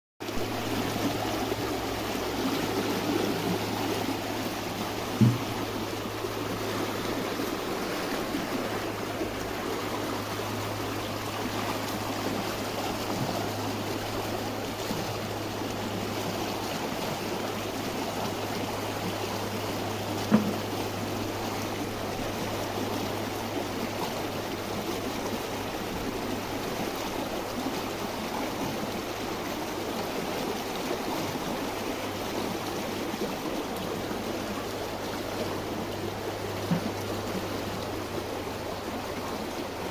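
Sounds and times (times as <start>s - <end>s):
stream rushing and trickling: 0.2s - 39.9s
low thump: 5.1s - 5.7s.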